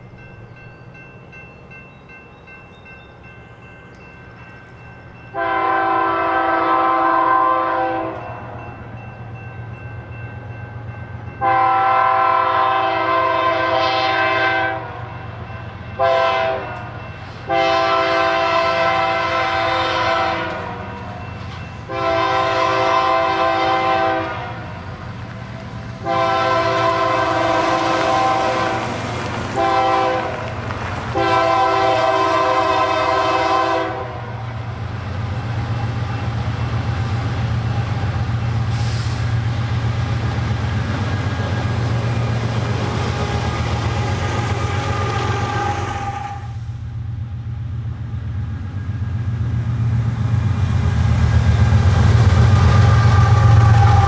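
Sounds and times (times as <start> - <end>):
locomotive air horn blasts: 5.3 - 8.6, 11.4 - 15.2, 16.0 - 21.2, 21.8 - 24.8, 26.0 - 28.8, 29.6 - 30.5, 31.1 - 34.5, 43.2 - 46.8, 52.5 - 54.0
locomotive engine drone: 14.8 - 54.0.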